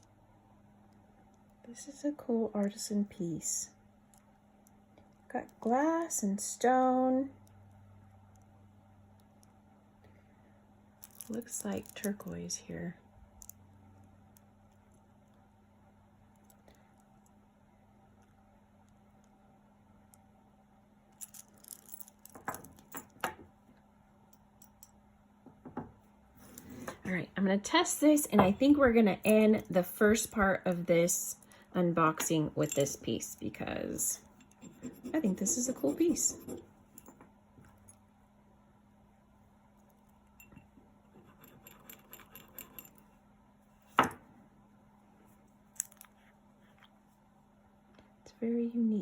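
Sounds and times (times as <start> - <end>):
beads clicking and rattling: 11.0 - 12.3, 21.1 - 23.2
necklace beads clinking: 11.0 - 12.6, 21.1 - 23.3, 28.2 - 36.4.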